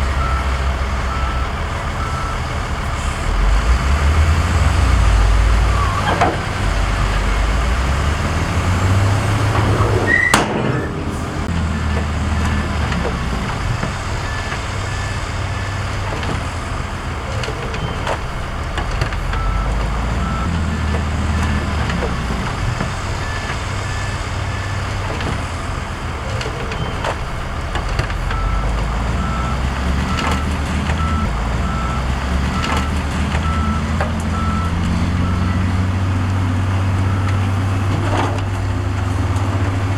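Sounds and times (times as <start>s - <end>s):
diesel machinery engine rumble: 0.0s - 39.9s
reversing alarm beeping: 0.1s - 3.5s, 8.1s - 16.0s, 19.2s - 25.0s, 28.2s - 36.0s, 36.9s - 37.6s.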